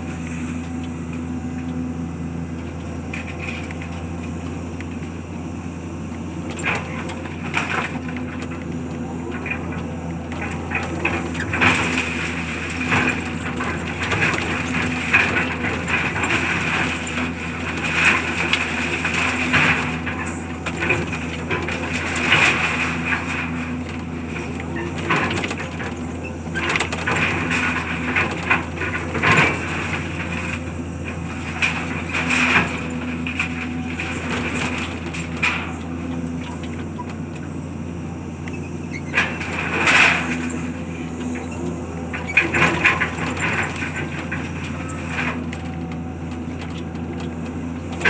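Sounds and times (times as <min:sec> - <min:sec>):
debris crunching and cracking: 0:00.0 - 0:48.0
engine humming: 0:00.0 - 0:48.0.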